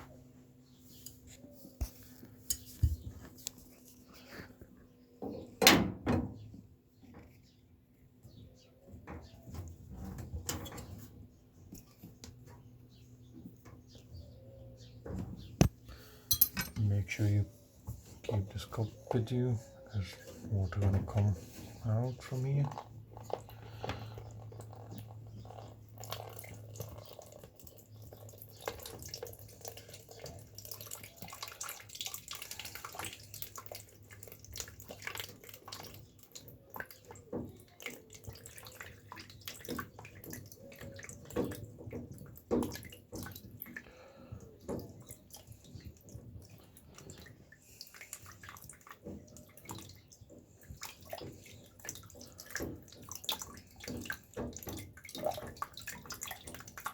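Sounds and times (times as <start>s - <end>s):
water dripping into a cup: 22.1s - 56.9s.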